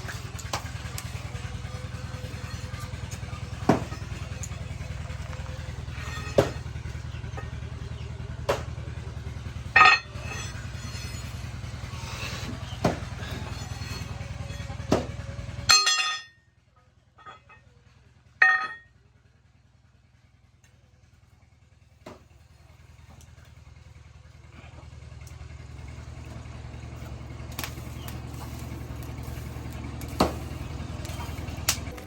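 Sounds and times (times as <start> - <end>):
metal clanging: 0.0 - 8.7, 9.4 - 16.4, 18.4 - 18.8
low motor hum: 0.0 - 32.0.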